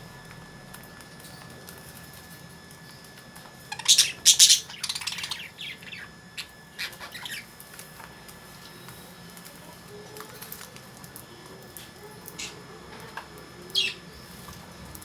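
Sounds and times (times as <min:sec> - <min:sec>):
lovebirds chirping and squawking: 0:03.6 - 0:07.7, 0:12.2 - 0:12.6, 0:13.6 - 0:14.4.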